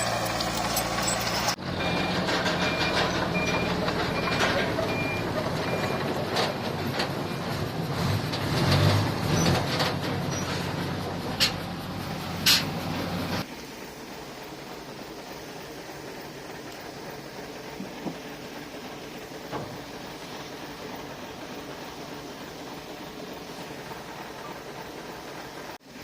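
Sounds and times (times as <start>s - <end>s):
heavy equipment diesel engine: 0.0s - 26.0s
backup alarm beeping: 1.8s - 6.0s.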